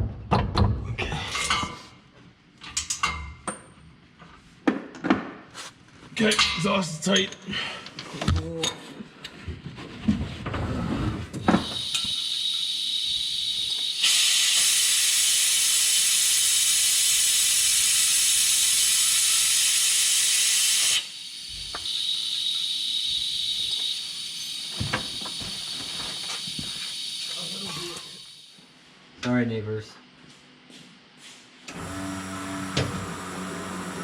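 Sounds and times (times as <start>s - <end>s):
pressurised air hissing: 11.5s - 28.8s.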